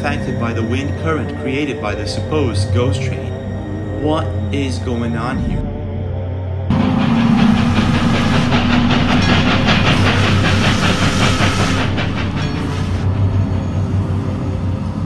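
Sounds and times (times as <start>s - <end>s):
train rushing rumble: 0.0s - 15.0s
wheels clattering over rails: 6.7s - 13.5s.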